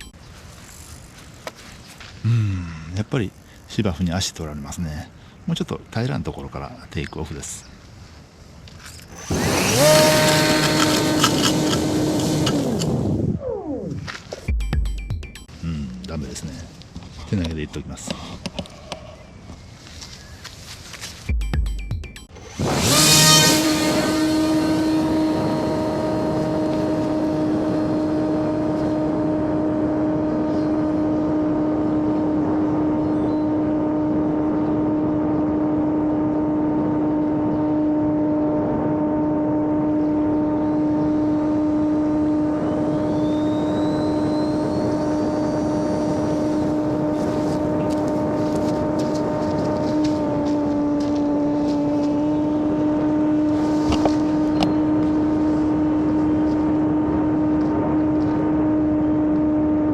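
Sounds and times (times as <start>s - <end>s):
electric model plane motor buzzing: 8.9s - 13.9s, 22.4s - 59.9s.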